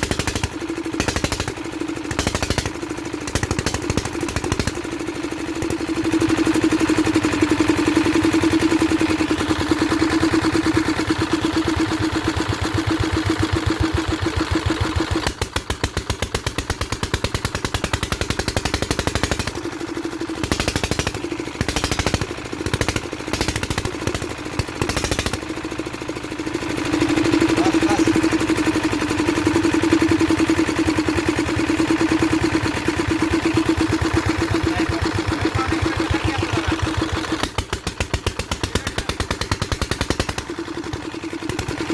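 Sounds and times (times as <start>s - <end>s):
stationary engine running: 0.0s - 41.9s.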